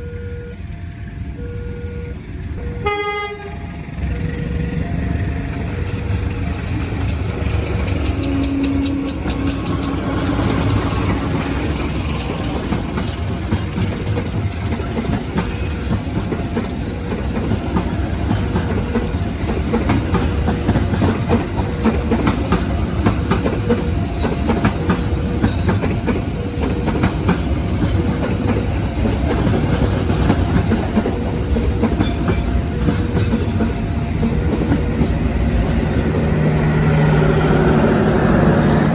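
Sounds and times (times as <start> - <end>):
train rumbling past: 0.0 - 38.9
train wheels clicking over rail joints: 2.6 - 38.9.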